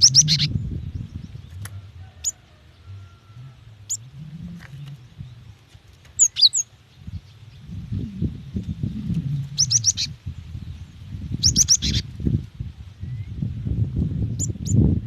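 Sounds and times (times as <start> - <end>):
low rumble: 0.0 - 5.9, 7.0 - 15.0
bird chirping: 0.0 - 12.0.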